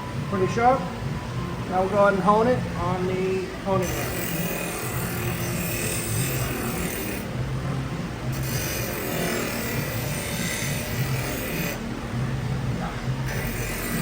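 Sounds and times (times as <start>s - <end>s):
knife scraping on sharpener: 8.4s - 11.8s.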